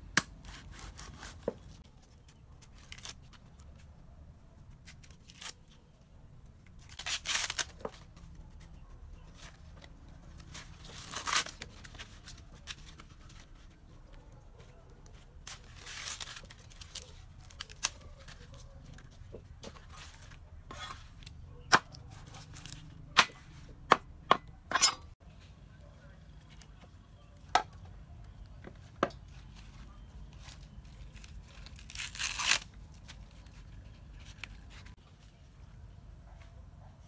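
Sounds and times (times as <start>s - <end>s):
rasping tearing sound: 0.4s - 1.5s, 6.8s - 7.8s, 31.0s - 33.6s.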